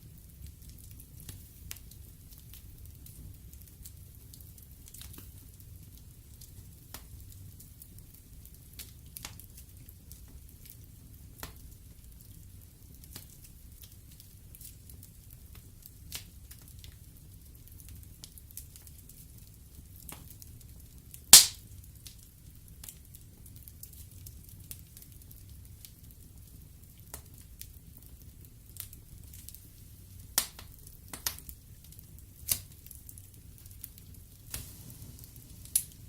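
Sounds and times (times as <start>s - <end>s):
wood fire crackling: 0.0s - 36.0s
fire pops: 21.2s - 22.2s, 27.0s - 36.0s.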